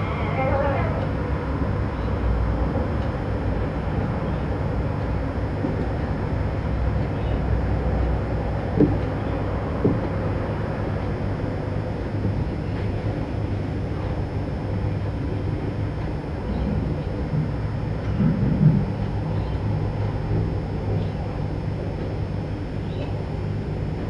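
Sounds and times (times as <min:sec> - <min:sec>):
low background rumble: 0:00.0 - 0:24.0.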